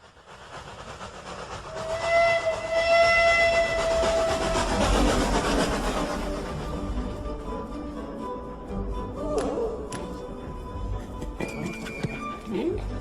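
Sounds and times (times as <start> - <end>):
steam train rumbling: 0.0 - 13.0
steam locomotive whistle: 1.7 - 5.0.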